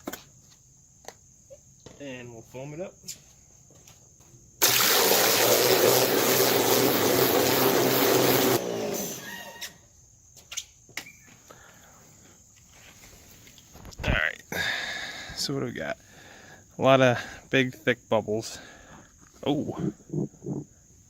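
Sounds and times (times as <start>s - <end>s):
water washing: 4.6s - 8.9s
water jet spraying into bucket: 4.6s - 9.7s.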